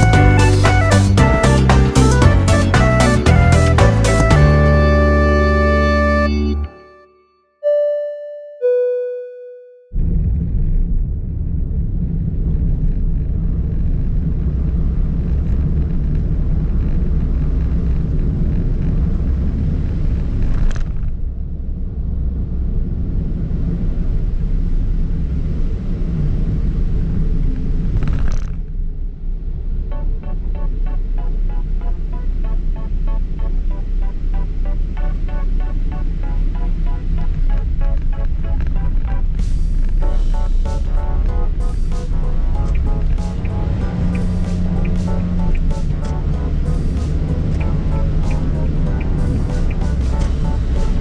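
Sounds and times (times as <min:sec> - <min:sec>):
music: 0:00.0 - 0:07.5, 0:29.9 - 0:51.0
short musical notes: 0:00.0 - 0:09.8, 0:40.0 - 0:51.0
road and engine rumble in car: 0:41.5 - 0:51.0.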